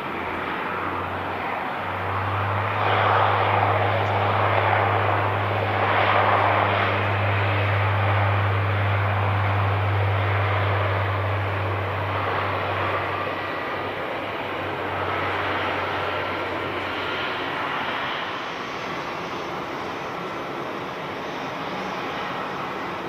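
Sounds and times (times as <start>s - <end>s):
airliner engine noise: 0.0s - 23.0s
strong low hum: 1.8s - 13.6s.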